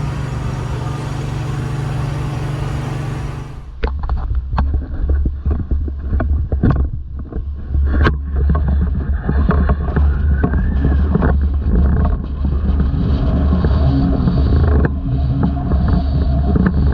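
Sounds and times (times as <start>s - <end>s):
strong wind hissing: 0.0s - 3.8s.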